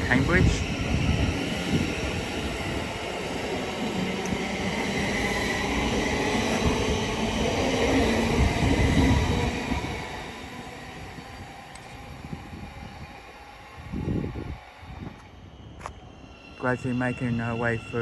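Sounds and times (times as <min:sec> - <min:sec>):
train rail rumble: 0:00.0 - 0:18.0.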